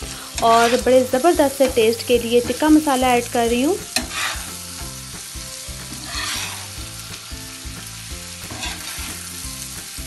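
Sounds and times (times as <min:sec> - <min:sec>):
meat sizzling in a pan: 0:00.0 - 0:10.0
metal spatula scraping a pan: 0:00.3 - 0:01.8, 0:03.9 - 0:05.0, 0:05.7 - 0:07.0, 0:08.3 - 0:09.5.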